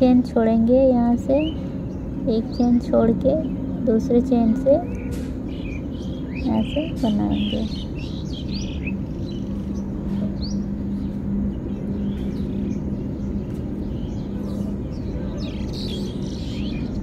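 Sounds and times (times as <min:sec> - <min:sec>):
low hum and rumbling: 0:00.0 - 0:17.0
bird chirps: 0:04.5 - 0:17.0.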